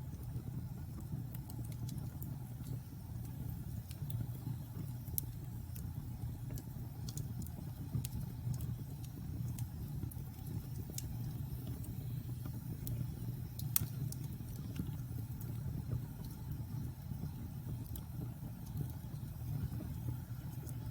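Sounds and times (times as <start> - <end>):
fire crackles and pops: 0.0 - 20.9
fire flames rumbling: 0.0 - 20.9.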